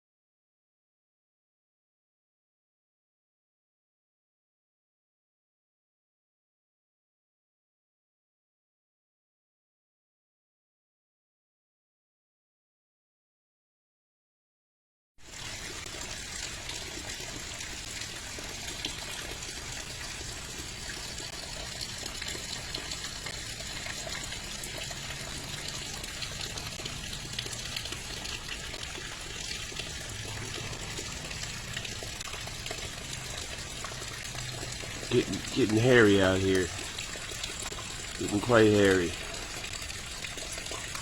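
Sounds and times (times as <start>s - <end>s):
freezing rain hissing: 15.2s - 41.0s.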